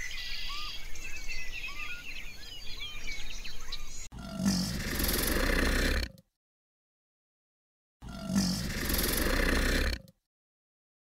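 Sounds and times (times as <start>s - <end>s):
crocodile growling: 4.1s - 6.2s, 8.0s - 10.2s.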